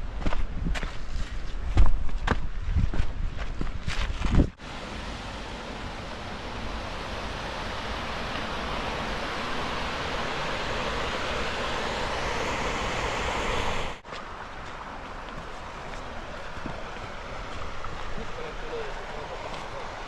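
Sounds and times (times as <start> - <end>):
flowing water rushing: 4.6 - 20.0.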